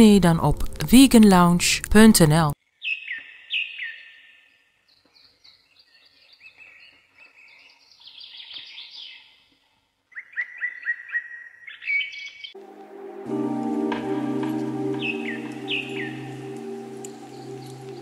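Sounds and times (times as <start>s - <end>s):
birdsong: 2.8s - 12.6s, 13.3s - 18.0s
music: 12.6s - 18.0s.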